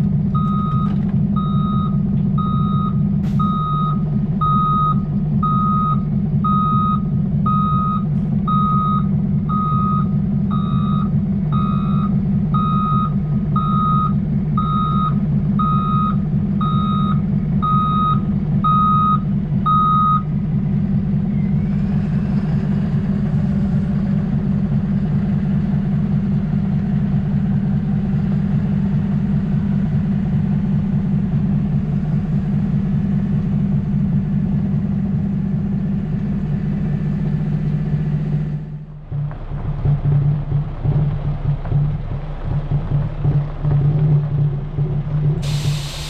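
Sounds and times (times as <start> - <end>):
diesel truck engine running: 0.0 - 46.0
truck backup alarm beeping: 0.3 - 20.3, 45.4 - 46.0.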